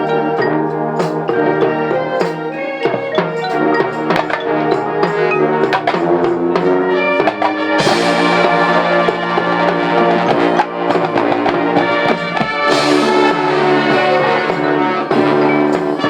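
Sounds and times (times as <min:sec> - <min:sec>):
marching band playing: 0:00.0 - 0:16.0
cymbal crash: 0:05.0 - 0:16.0.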